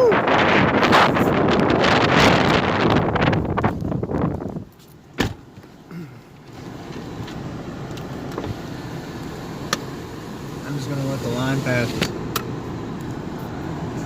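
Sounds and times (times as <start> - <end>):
wind noise on microphone: 0.0 - 4.8.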